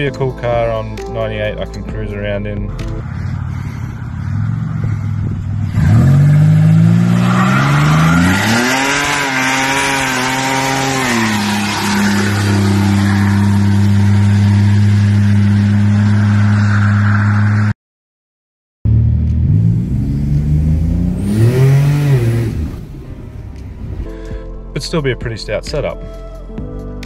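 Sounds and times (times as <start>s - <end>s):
car engine revving: 2.8s - 17.7s, 18.9s - 24.2s
tyre screech: 3.1s - 14.8s.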